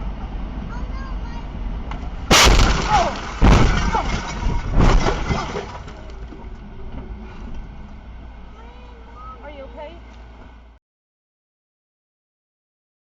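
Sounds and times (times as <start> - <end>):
loud crashing impacts: 2.2 - 6.0.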